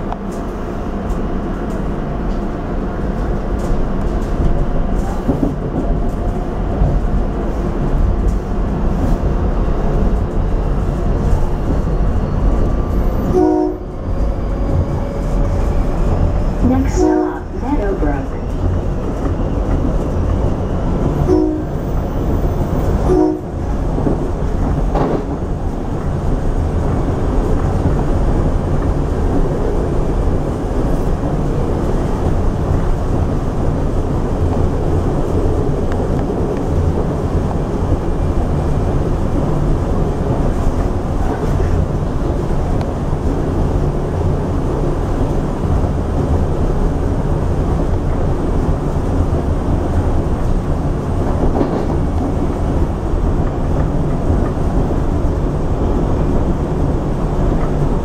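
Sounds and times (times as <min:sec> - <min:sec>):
train wheels rumbling on rail: 0:00.0 - 0:58.0
train horn blasts: 0:13.2 - 0:14.0, 0:16.7 - 0:17.5, 0:21.2 - 0:21.8, 0:23.0 - 0:23.6.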